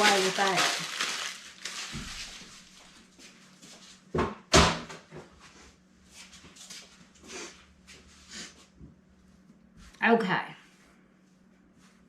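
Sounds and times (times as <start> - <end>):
paper rustling: 0.0 - 3.0.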